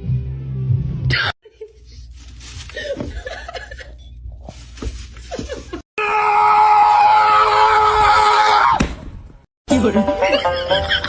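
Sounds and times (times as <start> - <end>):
scream-like cry: 6.0 - 8.8.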